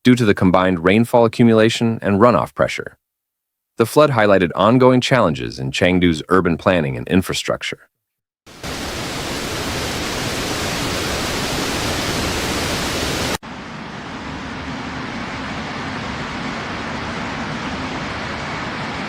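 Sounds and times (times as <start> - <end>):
rushing water: 8.5 - 13.4.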